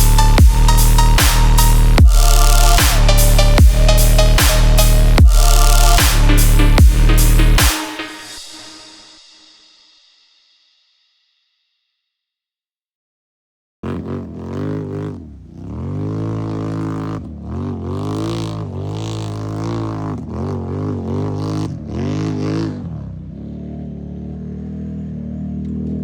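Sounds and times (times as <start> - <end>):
atv engine revving: 13.8 - 26.0.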